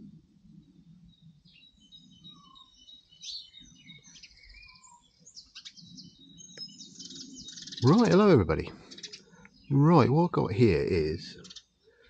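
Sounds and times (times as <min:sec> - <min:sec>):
small birds singing: 0:00.0 - 0:12.0.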